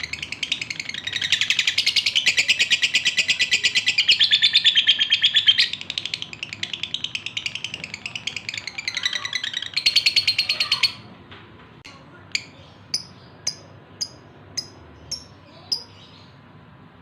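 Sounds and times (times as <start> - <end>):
lovebird chattering trill: 0.0 - 11.0, 12.3 - 16.3
lovebird sharp chirps: 12.4 - 16.3.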